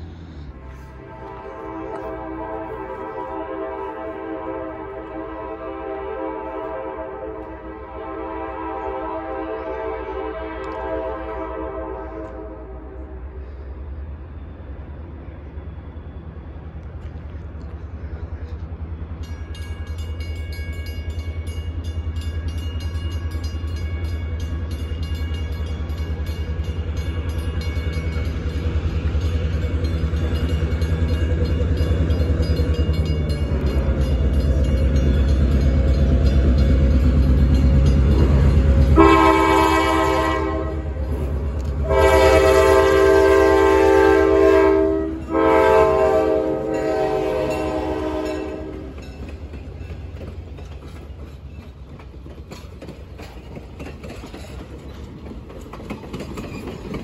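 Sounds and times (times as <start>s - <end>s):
diesel locomotive engine rumble: 0.0s - 57.0s
passenger coaches rolling past: 0.0s - 57.0s
train chime horn blasts: 0.7s - 13.2s, 29.1s - 41.2s, 41.8s - 49.2s.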